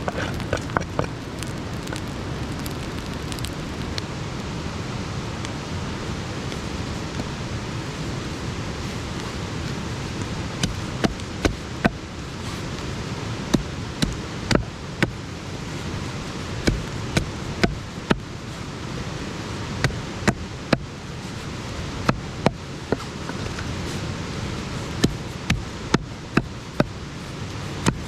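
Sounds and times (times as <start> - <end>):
campfire crackling and popping: 0.0 - 4.5, 5.3 - 28.0
fire hissing: 0.0 - 28.0.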